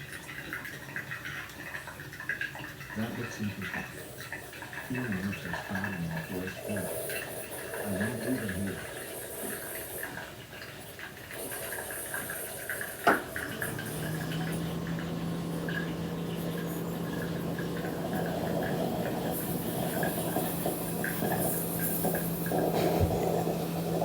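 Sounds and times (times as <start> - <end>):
espresso machine humming and hissing: 11.3 - 24.0.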